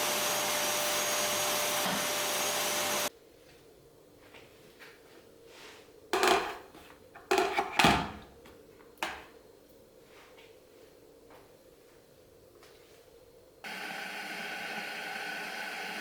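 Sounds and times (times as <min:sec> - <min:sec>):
household objects knocking: 0:06.2 - 0:08.2.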